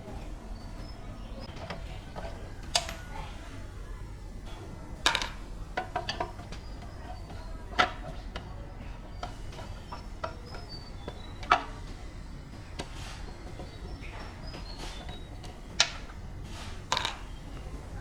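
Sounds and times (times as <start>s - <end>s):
faint bird chirps: 6.0s - 18.0s.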